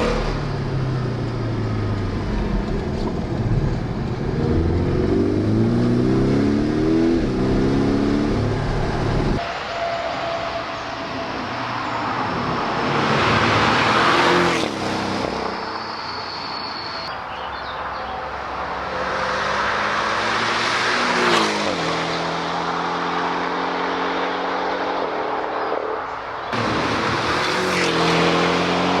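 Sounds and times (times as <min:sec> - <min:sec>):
car engine accelerating hard: 0:00.0 - 0:09.4, 0:26.5 - 0:29.0.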